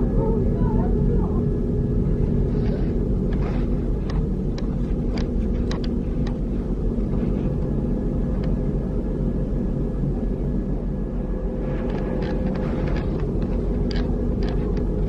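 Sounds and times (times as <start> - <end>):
diesel engine droning: 0.0 - 15.0
sharp clicks and rattles: 2.5 - 6.5, 11.8 - 15.0.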